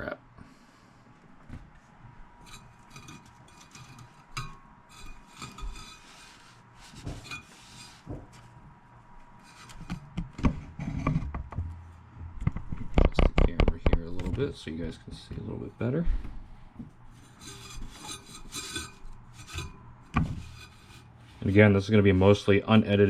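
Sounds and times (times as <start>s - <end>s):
wipe scraping inside metal chassis: 17.2s - 22.4s.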